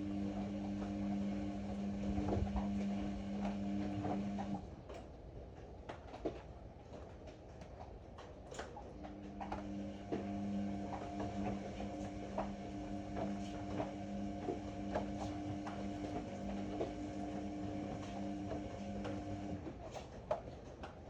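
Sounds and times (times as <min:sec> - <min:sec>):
washer-dryer drum motor humming: 0:00.0 - 0:05.0, 0:08.9 - 0:20.1.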